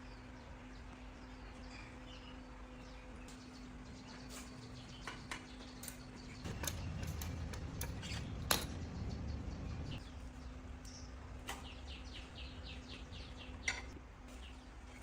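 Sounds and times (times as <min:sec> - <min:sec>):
steady low hum: 0:00.0 - 0:15.0
low rumble: 0:06.4 - 0:10.2.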